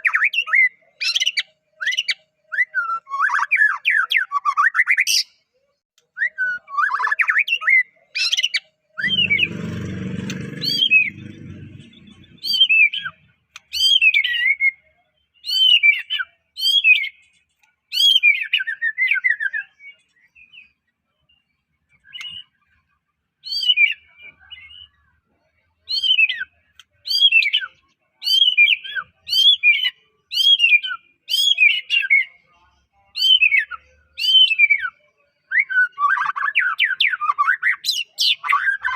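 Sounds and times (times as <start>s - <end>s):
low rumbling noise: 9.0s - 12.6s.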